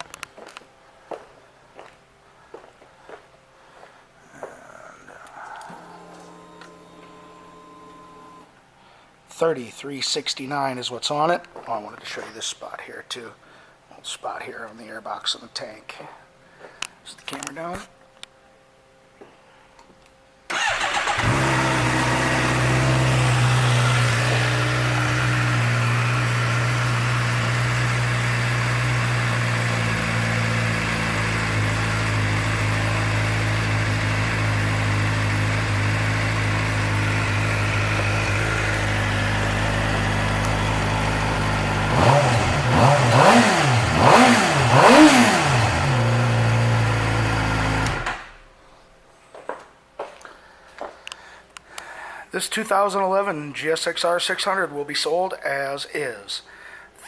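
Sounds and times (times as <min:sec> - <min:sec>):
motorcycle engine idling and revving: 0:20.5 - 0:48.4.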